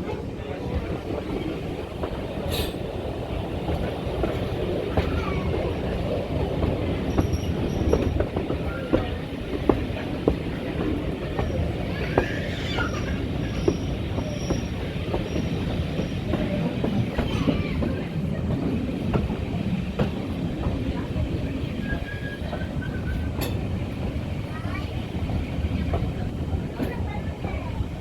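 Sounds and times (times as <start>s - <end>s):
train wheels rumbling on rail: 0.0s - 28.0s
faint high wheel squeal: 21.8s - 23.3s.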